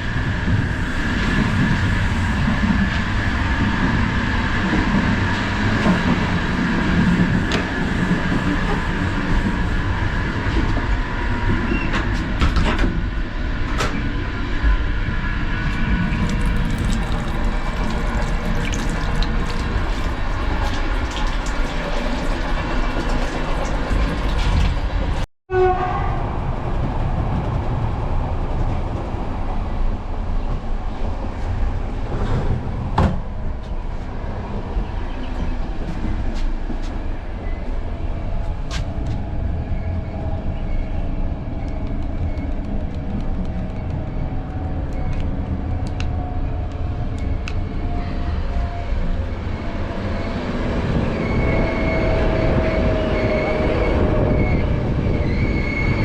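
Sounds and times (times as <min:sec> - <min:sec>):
train rumble and rattle: 0:00.0 - 0:56.0.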